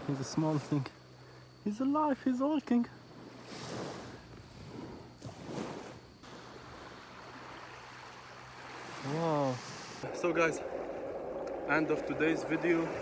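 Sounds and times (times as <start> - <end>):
small waves lapping at shore: 0.0 - 13.0.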